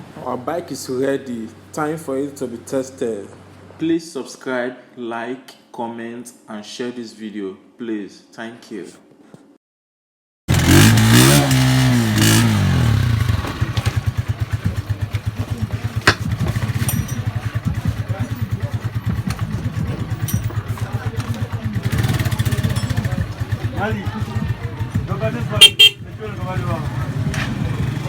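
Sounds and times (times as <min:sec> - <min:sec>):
motorcycle engine revving and idling: 0:10.5 - 0:28.0.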